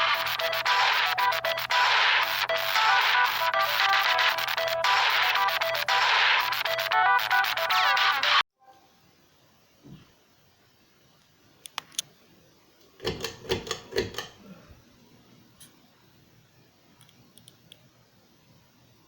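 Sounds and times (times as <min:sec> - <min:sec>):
faint background hum: 0:08.6 - 0:19.0.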